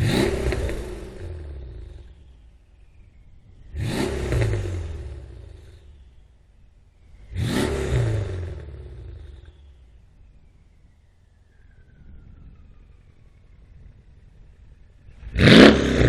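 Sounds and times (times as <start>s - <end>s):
car engine revving: 0.0s - 6.4s, 7.0s - 10.3s, 14.6s - 16.0s.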